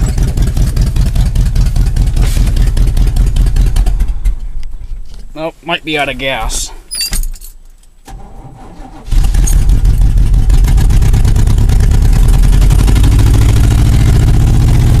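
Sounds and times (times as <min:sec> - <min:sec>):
truck engine starting and running: 0:00.0 - 0:04.8, 0:08.0 - 0:15.0.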